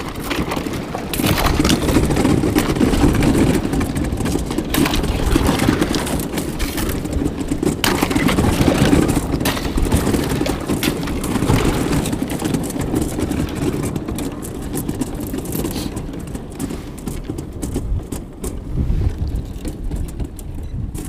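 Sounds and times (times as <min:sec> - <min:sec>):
kayak breaking through ice: 0:00.0 - 0:20.4.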